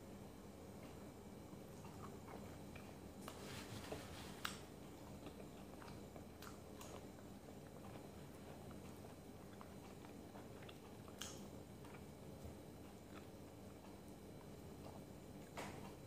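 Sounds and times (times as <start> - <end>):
low steady hum: 0.0 - 16.0
person chewing food: 0.9 - 16.0
mouth clicks and smacks: 8.7 - 12.1.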